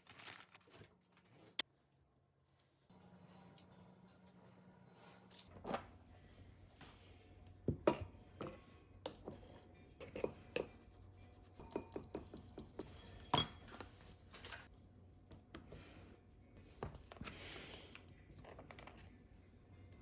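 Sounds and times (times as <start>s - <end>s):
kitchen utensils and dishes clinking: 7.7s - 10.8s, 11.6s - 14.7s.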